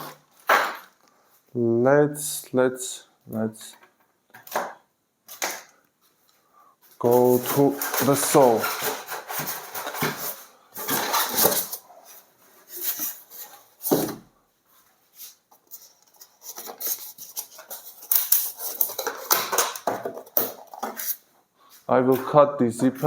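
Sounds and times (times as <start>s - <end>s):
packaging rustling: 7.0s - 14.0s, 15.2s - 21.2s.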